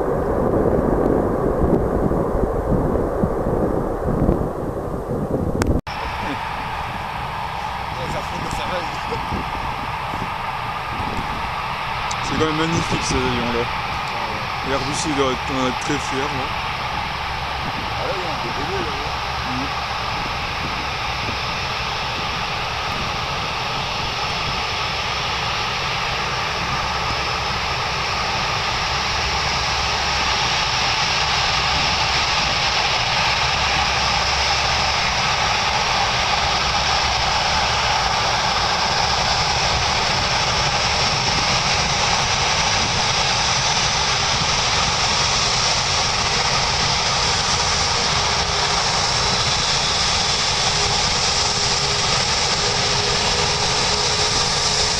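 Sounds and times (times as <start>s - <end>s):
jet engines roaring: 0.0s - 54.9s.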